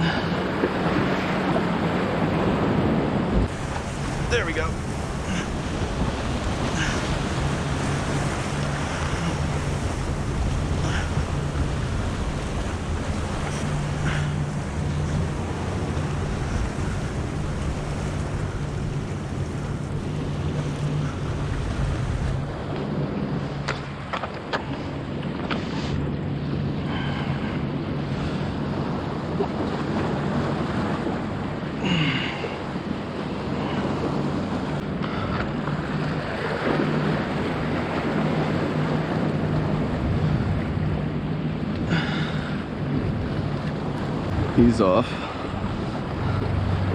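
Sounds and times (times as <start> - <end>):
steady low hum: 0.0 - 24.0
ocean surf breaking: 0.0 - 46.9
wind rumbling on microphone: 0.0 - 46.9.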